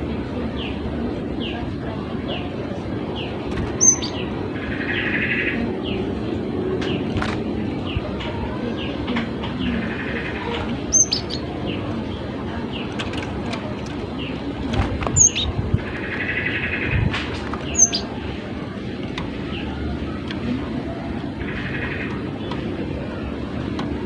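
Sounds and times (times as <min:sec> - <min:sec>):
low background noise: 0:00.0 - 0:24.0
bird chirps: 0:03.2 - 0:06.1, 0:09.6 - 0:11.8, 0:15.2 - 0:17.0, 0:17.6 - 0:18.2.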